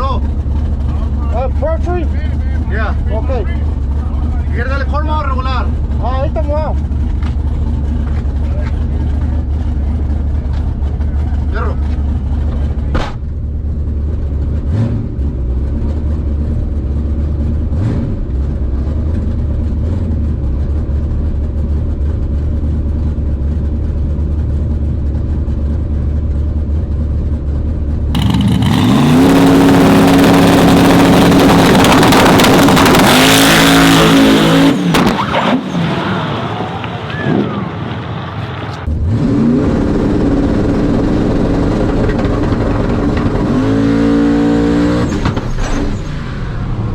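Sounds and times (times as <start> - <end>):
truck engine idling: 0.0 - 14.6, 18.3 - 39.0
truck engine revving at full throttle: 0.0 - 46.9
engine revving: 14.1 - 20.9, 28.1 - 46.9.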